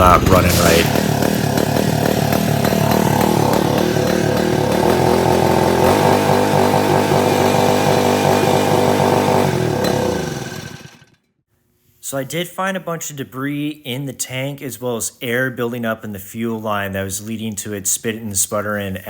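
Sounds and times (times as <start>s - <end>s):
gasoline engine sputtering: 0.0s - 11.0s.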